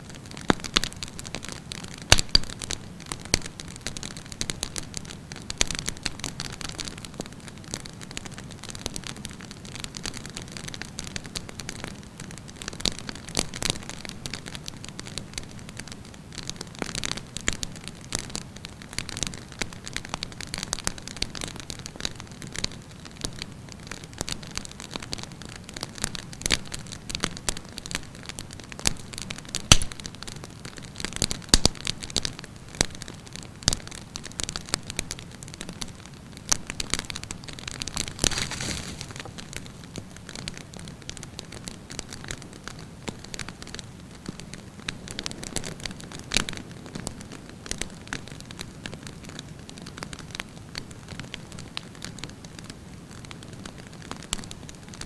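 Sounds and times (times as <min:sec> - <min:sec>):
campfire crackling and popping: 0:00.0 - 0:55.0
fire hissing: 0:38.0 - 0:40.0.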